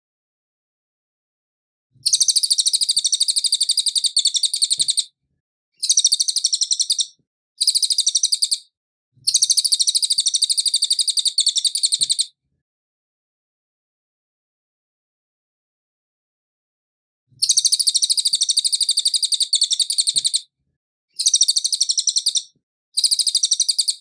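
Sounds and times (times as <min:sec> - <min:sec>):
bird singing chattering notes: 0:02.1 - 0:05.0, 0:05.8 - 0:08.6, 0:09.3 - 0:12.3, 0:17.4 - 0:20.4, 0:21.2 - 0:24.0.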